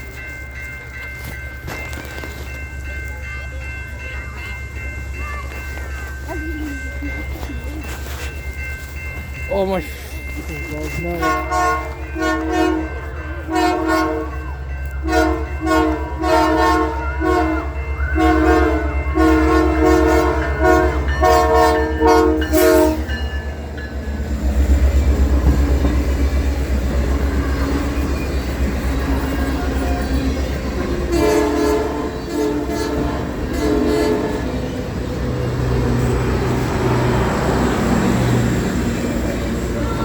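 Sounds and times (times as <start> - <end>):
train wheels rolling: 0.0 - 16.2, 18.8 - 40.0
locomotive air horn blasts: 11.2 - 14.4, 15.0 - 23.1, 31.0 - 34.6.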